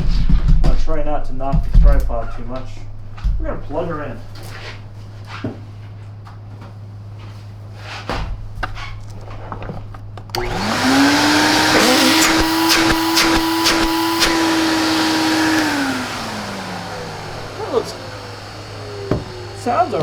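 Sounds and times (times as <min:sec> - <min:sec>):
vacuum cleaner motor whining: 0:08.9 - 0:20.0.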